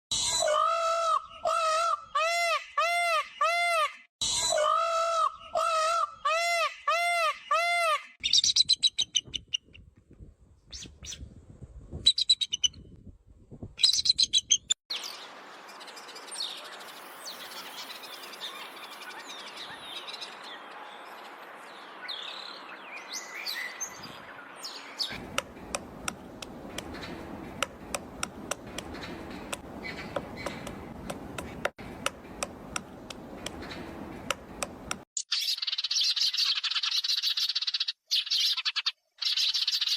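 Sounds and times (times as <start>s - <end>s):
high bird chirps and clicks: 8.2s - 9.9s, 25.1s - 39.9s
birds calling: 13.8s - 39.9s.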